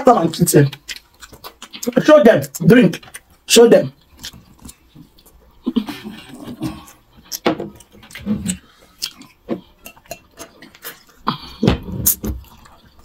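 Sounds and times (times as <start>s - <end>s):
wet chewing and lip smacking: 0.6s - 13.0s.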